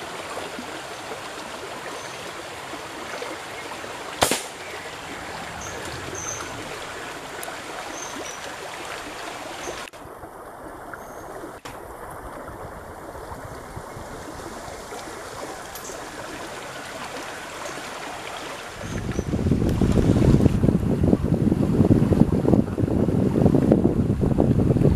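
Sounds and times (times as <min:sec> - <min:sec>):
water rushing over rocks: 0:00.0 - 0:20.7
faint high chirps: 0:04.6 - 0:07.0.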